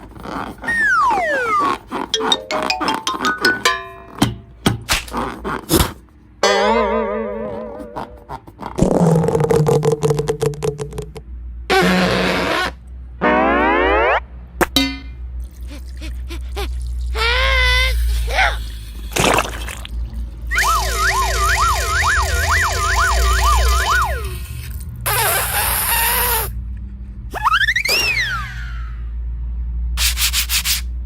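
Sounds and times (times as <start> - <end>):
siren-like wailing: 13.2 - 14.3, 20.6 - 24.4
cartoon boing sound effect: 13.2 - 15.1.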